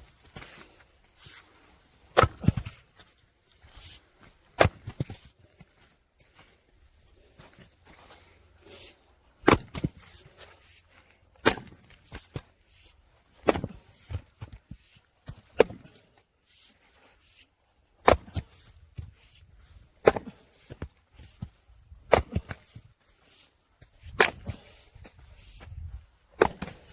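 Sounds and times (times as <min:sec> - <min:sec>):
axe striking firewood: 0:02.1 - 0:02.8, 0:04.5 - 0:05.3, 0:09.4 - 0:10.2, 0:11.3 - 0:12.6, 0:13.3 - 0:16.2, 0:18.0 - 0:19.1, 0:20.0 - 0:22.9, 0:23.8 - 0:25.2, 0:26.4 - 0:26.9.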